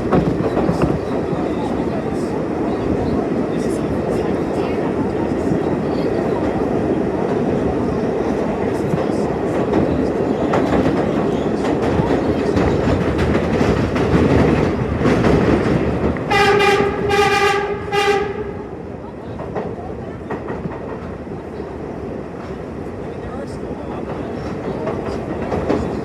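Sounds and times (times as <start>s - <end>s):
subway train wheels clattering: 0.0s - 26.0s
train horn blasts: 16.3s - 18.7s.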